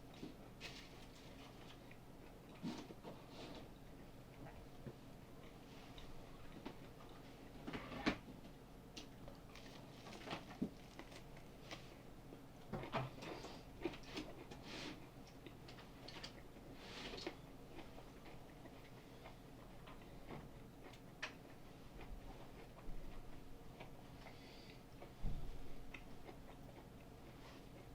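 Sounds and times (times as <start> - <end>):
cucumber crunching: 9.2 - 12.0.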